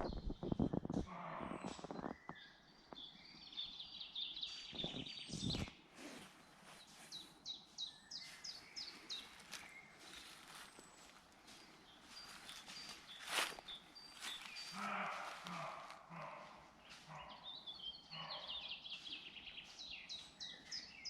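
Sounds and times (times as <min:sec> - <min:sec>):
songbirds singing: 0:00.0 - 0:21.0.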